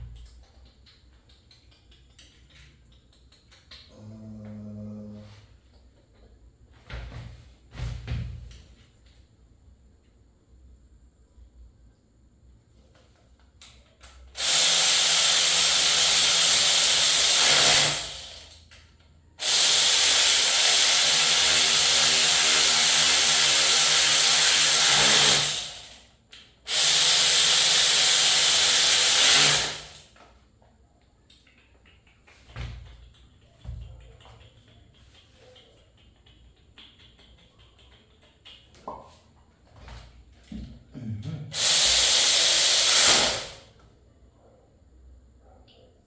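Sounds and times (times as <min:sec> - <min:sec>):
power tool hissing and humming: 0:14.4 - 0:18.4, 0:19.4 - 0:26.0, 0:26.7 - 0:30.0, 0:41.6 - 0:43.6.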